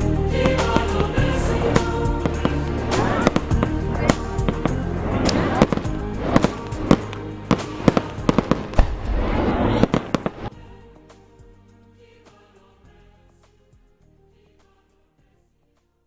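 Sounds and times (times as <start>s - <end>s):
fireworks bangs and crackles: 0.0s - 10.5s
music: 0.0s - 16.0s.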